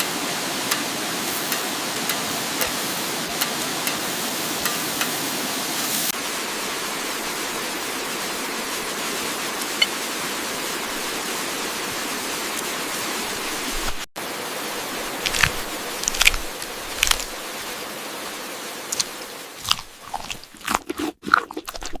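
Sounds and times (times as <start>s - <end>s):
chewing crunches and clicks: 15.2s - 17.4s, 18.9s - 22.0s.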